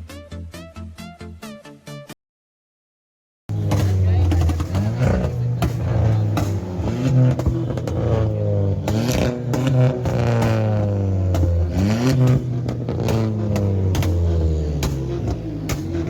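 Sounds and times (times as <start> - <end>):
motorcycle and car engines revving: 3.5 - 16.0.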